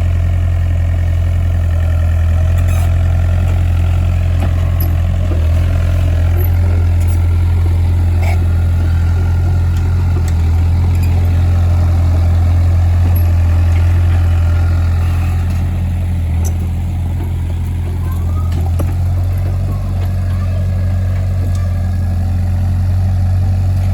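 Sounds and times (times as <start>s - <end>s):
heavy engine humming: 0.0s - 23.9s.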